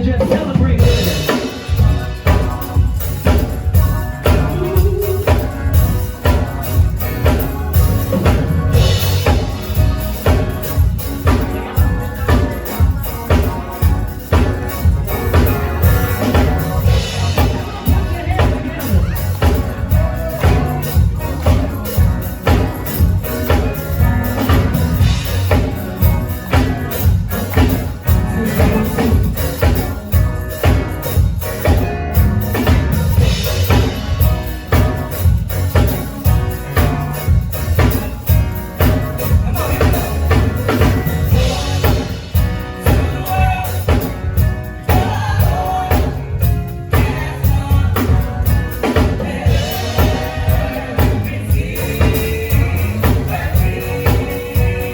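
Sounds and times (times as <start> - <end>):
gospel band playing: 0.0 - 54.9
voices singing: 0.0 - 54.9
hand percussion shaking: 0.8 - 54.9.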